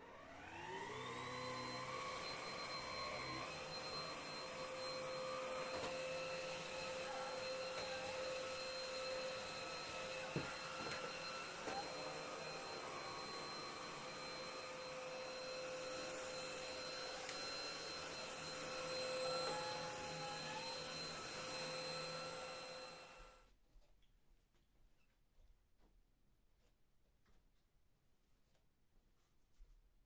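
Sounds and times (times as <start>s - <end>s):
vacuum cleaner whining: 0.0s - 23.5s.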